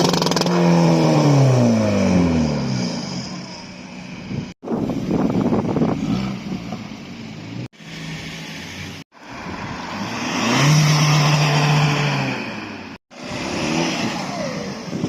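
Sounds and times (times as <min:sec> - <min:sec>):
car engines revving: 0:05.4 - 0:15.0.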